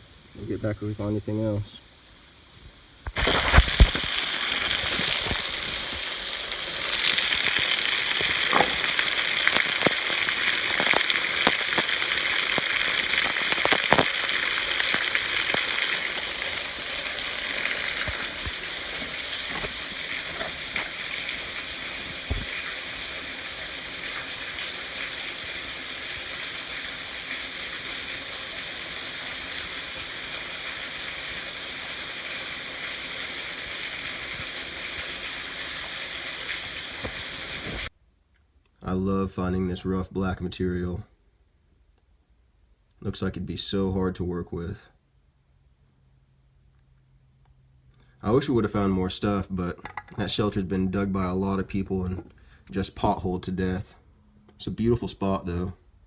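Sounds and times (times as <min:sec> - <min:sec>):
waterfall splashing into creek: 0:00.0 - 0:37.9.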